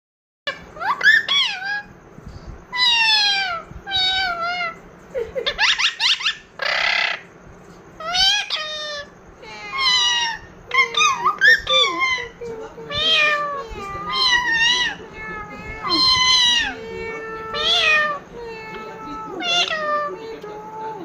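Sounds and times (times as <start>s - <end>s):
parakeet calling: 0.5s - 2.0s, 2.7s - 20.2s
parakeet screech: 9.7s - 12.4s, 15.8s - 16.8s.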